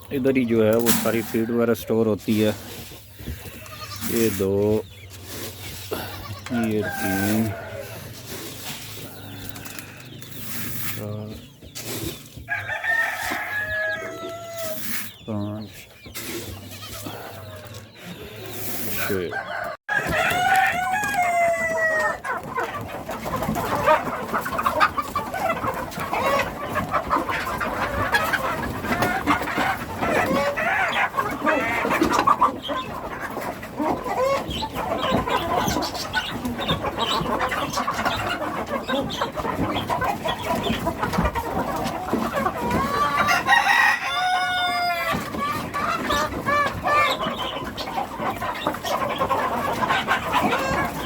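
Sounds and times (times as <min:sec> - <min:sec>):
chickens clucking: 0:00.0 - 0:51.0
rooster crowing: 0:12.5 - 0:14.8, 0:19.3 - 0:22.2, 0:43.3 - 0:45.2.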